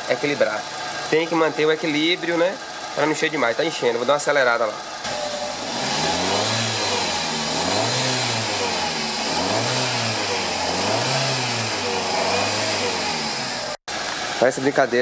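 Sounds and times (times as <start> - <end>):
car engine revving: 5.0 - 14.4.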